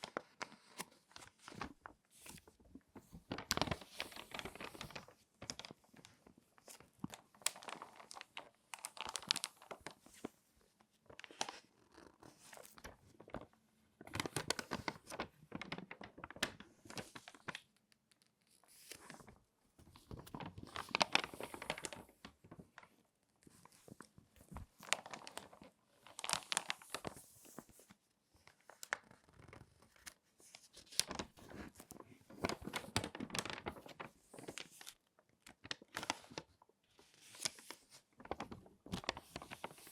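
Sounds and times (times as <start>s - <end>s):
magazine pages crinkling: 0.0s - 10.3s, 11.1s - 17.7s, 18.7s - 28.0s, 28.6s - 39.9s.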